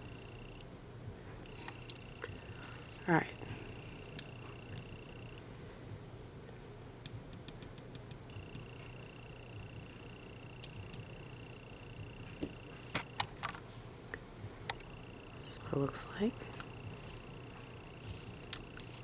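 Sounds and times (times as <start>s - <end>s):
small light clicks: 7.0s - 8.7s, 10.6s - 11.1s.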